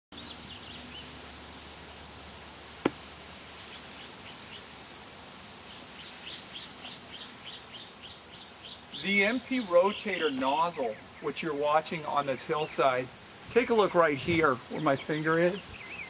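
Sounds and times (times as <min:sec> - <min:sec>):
steady hiss: 0:00.2 - 0:16.0
birds chirping: 0:05.7 - 0:16.0.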